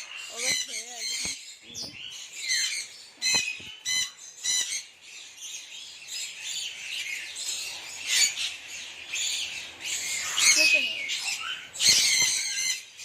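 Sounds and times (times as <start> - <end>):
high-pitched bird chattering: 0.0 - 4.9, 9.4 - 13.0
parrots squawking: 0.0 - 5.0, 6.8 - 13.0.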